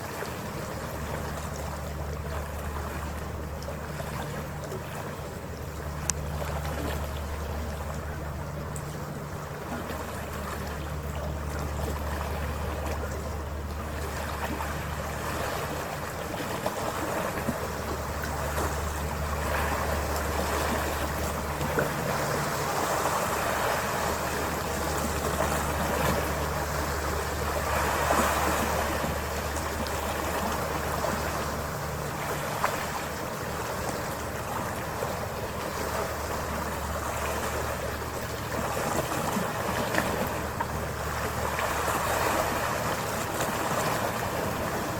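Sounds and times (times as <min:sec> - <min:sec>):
ferry engine drone: 0:00.0 - 0:44.9
water rushing along hull: 0:00.0 - 0:44.9.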